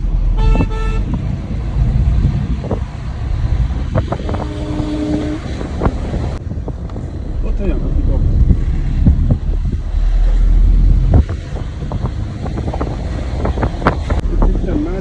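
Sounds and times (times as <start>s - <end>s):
car driving low rumble: 0.0s - 15.0s
car horn: 0.3s - 1.2s, 4.0s - 6.0s
lower-pitched horn: 0.3s - 1.2s, 4.0s - 5.9s.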